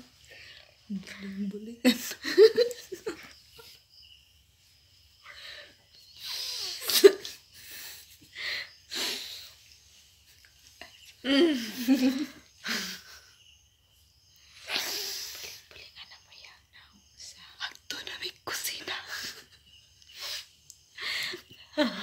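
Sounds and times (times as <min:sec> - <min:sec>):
women laughing: 0:01.9 - 0:03.8, 0:06.6 - 0:08.3, 0:11.2 - 0:13.2
women stifling laughter: 0:01.9 - 0:03.8, 0:06.4 - 0:09.4, 0:11.2 - 0:13.2.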